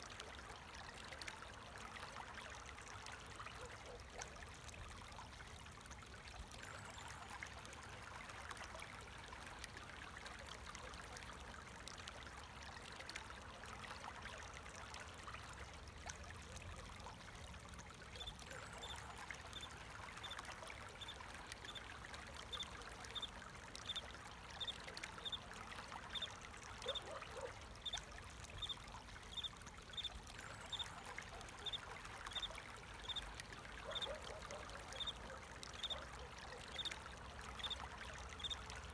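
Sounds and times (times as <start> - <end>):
trickle of flowing water: 0.0 - 38.9.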